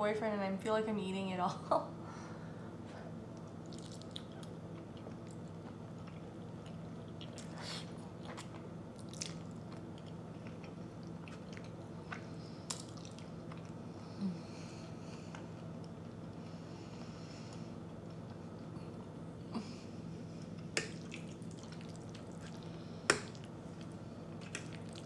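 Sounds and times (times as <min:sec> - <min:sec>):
steady low hum: 0:00.0 - 0:25.0
soft chewing and smacks: 0:03.3 - 0:14.1, 0:14.9 - 0:19.0, 0:19.6 - 0:25.0.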